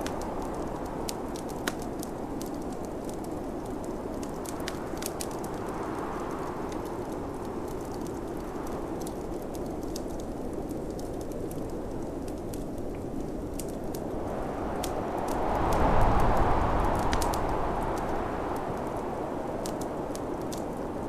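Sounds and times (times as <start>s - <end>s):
fire popping: 0.0s - 21.0s
snowstorm wind gusts: 0.0s - 21.0s
wood fire crackling: 0.0s - 21.0s.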